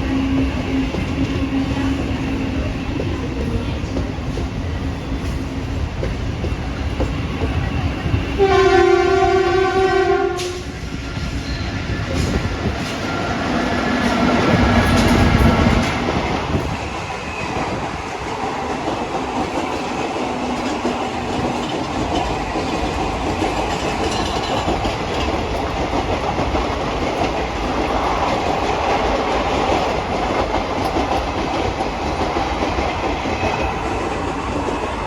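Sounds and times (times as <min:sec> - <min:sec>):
train rumble: 0:00.0 - 0:35.0
train wheels clicking over joints: 0:10.3 - 0:35.0.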